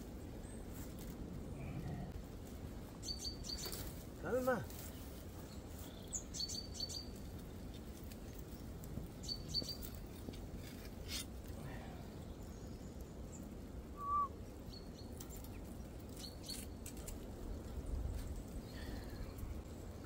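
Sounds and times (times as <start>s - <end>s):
bird chirp: 3.0s - 3.8s, 4.9s - 7.2s, 8.3s - 10.4s, 11.9s - 16.8s.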